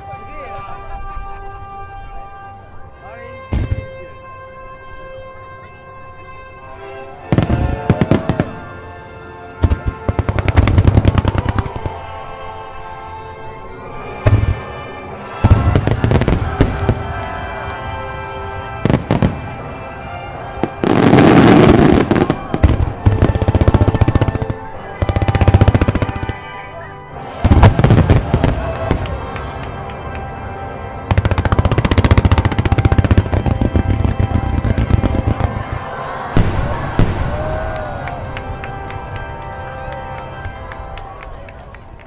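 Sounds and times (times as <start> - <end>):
music: 0.0 - 42.0
fireworks bangs and crackles: 3.5 - 4.1, 7.3 - 8.8, 9.6 - 12.2, 14.2 - 26.6, 27.2 - 41.1.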